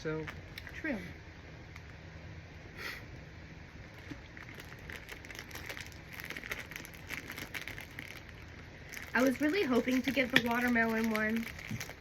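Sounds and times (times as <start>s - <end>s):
plastic wrapper crinkling: 0.0s - 0.8s, 3.8s - 12.0s.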